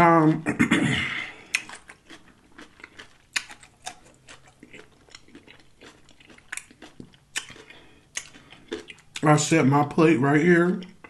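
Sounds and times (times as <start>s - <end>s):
man chewing with wet mouth clicks: 1.4s - 9.3s.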